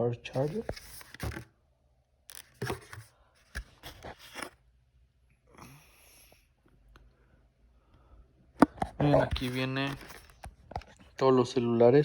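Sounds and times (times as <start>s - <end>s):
cardboard box taps and scrapes: 0.4s - 1.4s, 2.5s - 4.6s
cardboard rustle: 0.4s - 1.5s, 2.3s - 4.6s, 8.7s - 11.1s.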